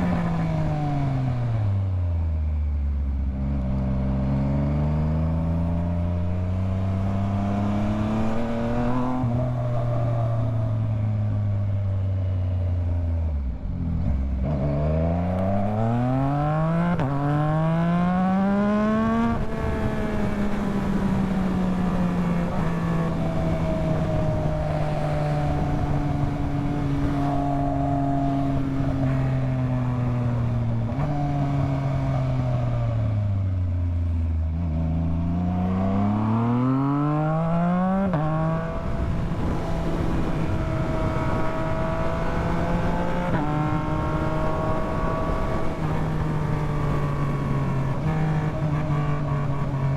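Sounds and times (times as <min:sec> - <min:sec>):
motorcycle engine revving: 0:03.2 - 0:12.3, 0:14.0 - 0:49.9.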